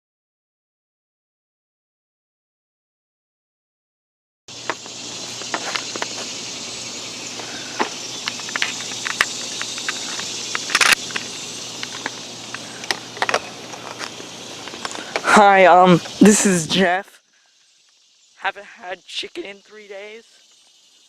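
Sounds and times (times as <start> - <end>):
steady high hiss: 4.5 - 21.0
crackles and clicks: 4.6 - 16.8.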